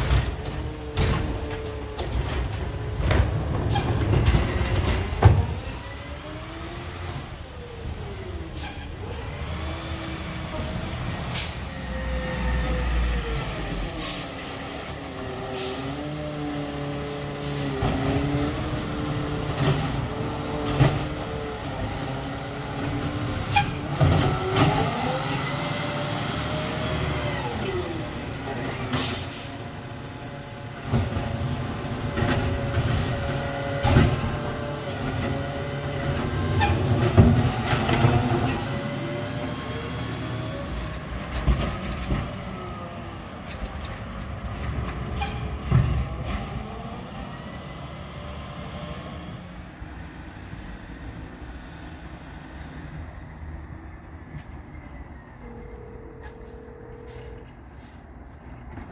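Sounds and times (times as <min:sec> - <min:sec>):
diesel engine revving: 0:00.0 - 0:43.7.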